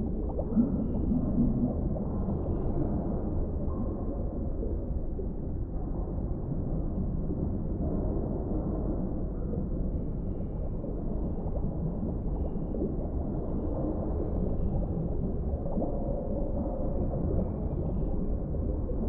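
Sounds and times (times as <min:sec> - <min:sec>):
muffled underwater rumble: 0:00.0 - 0:19.0.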